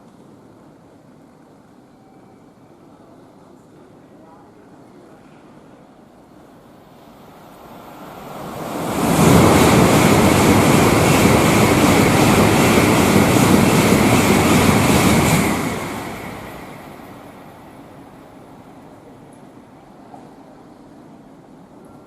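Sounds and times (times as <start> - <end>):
high-speed train passing: 2.9 - 22.0.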